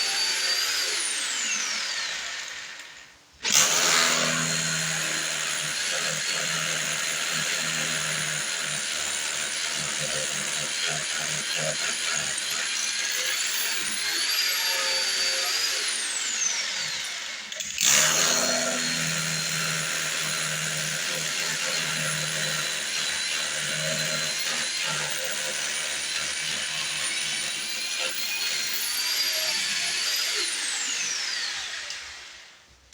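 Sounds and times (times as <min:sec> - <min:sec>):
power tool motor whine: 0:00.0 - 0:05.7, 0:12.8 - 0:26.0, 0:28.2 - 0:32.6.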